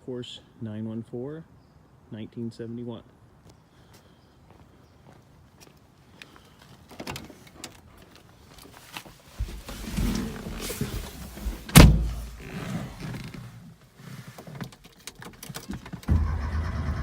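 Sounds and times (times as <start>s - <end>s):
starter cranking car engine: 16.0s - 17.0s.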